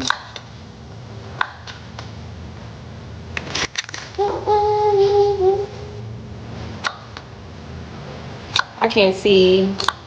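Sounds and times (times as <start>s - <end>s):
infant cooing: 4.2s - 6.0s.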